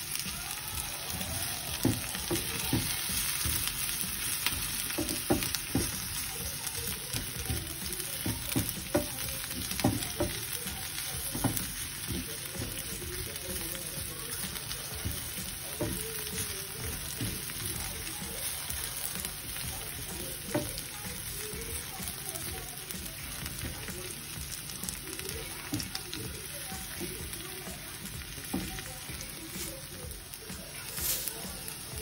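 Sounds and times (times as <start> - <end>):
vegetables sizzling in hot oil: 0.0 - 32.0
spatula scraping and tapping pan: 1.7 - 32.0.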